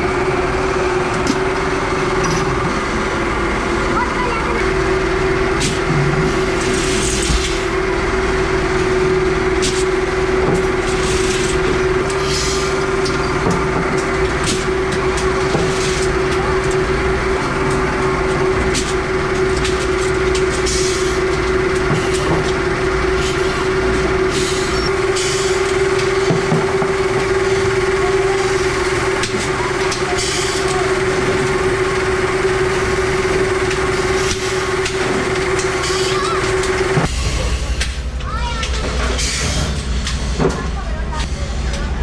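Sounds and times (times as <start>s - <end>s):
workshop machine humming: 0.0s - 42.0s.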